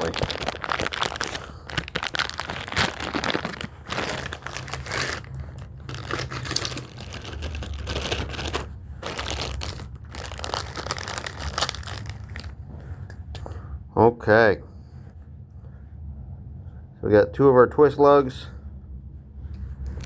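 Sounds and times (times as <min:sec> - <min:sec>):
plastic bag crinkling and rustling: 0:00.0 - 0:12.7.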